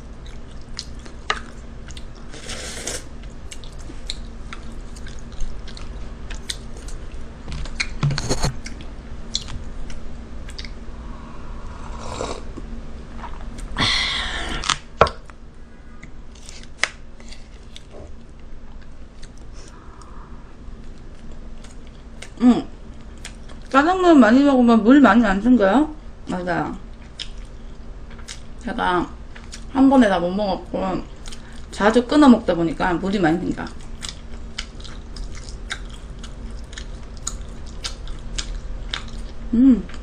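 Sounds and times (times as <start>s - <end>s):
close chewing with mouth clicks: 0.0s - 8.0s, 8.6s - 10.8s, 26.9s - 28.6s, 29.3s - 29.7s, 33.7s - 40.0s.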